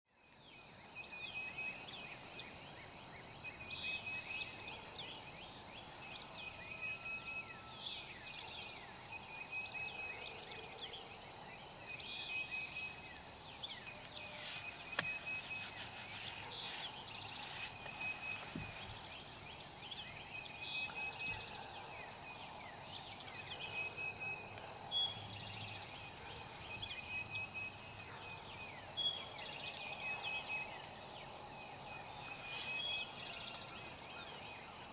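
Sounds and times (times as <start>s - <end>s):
insects trilling: 11.1s - 34.9s
birds chirping: 12.4s - 21.6s.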